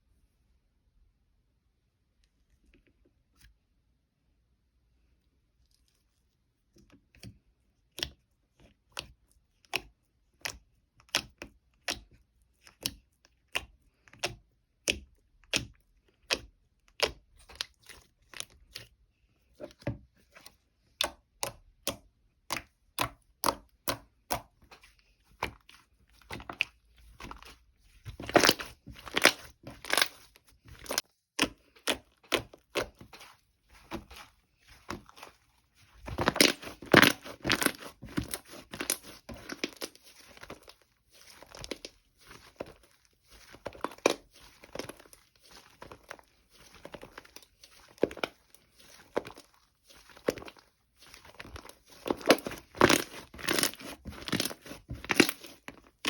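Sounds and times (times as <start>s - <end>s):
crunchy food being chewed: 26.4s - 56.0s.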